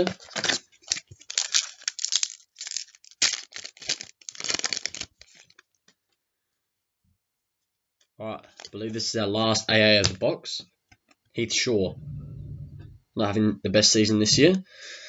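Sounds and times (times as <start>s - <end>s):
foil card pack tearing: 0.0s - 5.6s
wrapper crinkling: 0.0s - 5.7s.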